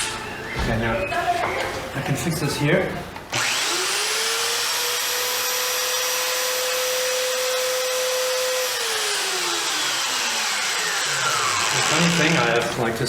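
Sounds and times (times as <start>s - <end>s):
belt sander whining: 3.3s - 12.8s.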